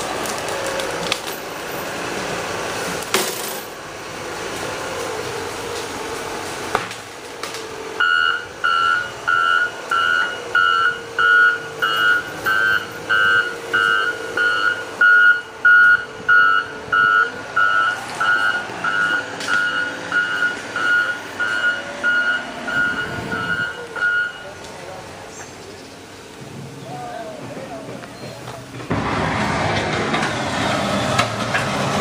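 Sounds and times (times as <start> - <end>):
diesel engine running: 0.0 - 32.0
backup alarm beeping: 8.0 - 24.6.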